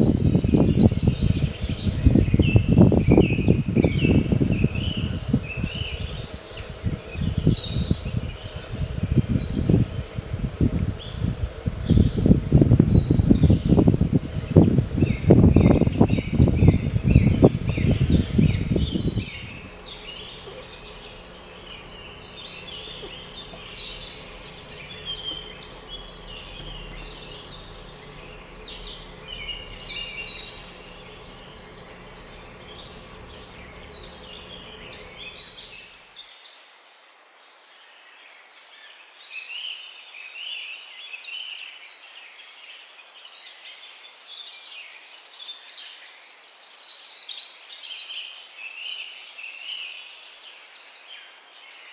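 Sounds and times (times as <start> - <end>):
low steady rumble: 0.0 - 35.9
songbirds chirping: 0.0 - 51.9.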